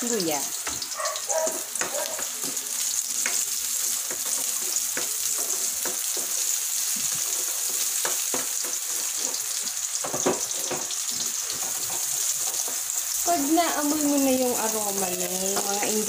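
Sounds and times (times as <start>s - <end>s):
vegetables sizzling in oil: 0.0s - 16.0s
spatula scraping and tapping wok: 0.5s - 13.2s.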